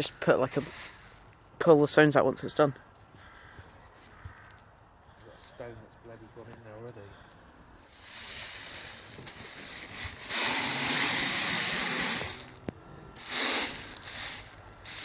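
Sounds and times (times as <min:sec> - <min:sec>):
stones pouring: 0:07.9 - 0:12.6, 0:13.2 - 0:15.0
stones rattling: 0:13.2 - 0:15.0.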